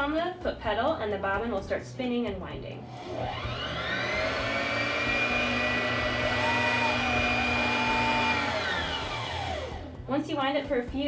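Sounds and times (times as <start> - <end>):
sewing machine motor whining: 2.8 - 10.0.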